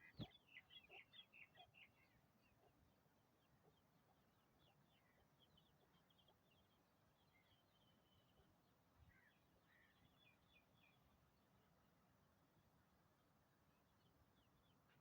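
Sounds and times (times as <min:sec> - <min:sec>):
faint high bird chirps: 0:00.0 - 0:02.8
low background hiss: 0:00.0 - 0:15.0.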